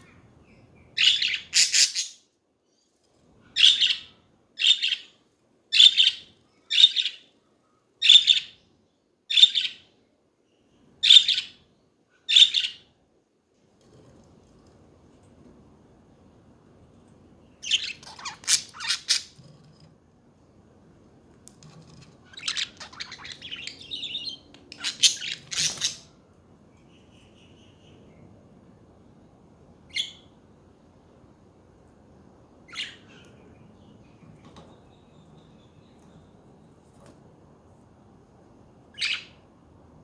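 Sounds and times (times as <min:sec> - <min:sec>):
budgerigars chirping: 0:01.0 - 0:02.2, 0:05.8 - 0:07.2, 0:17.6 - 0:19.4, 0:22.3 - 0:26.1.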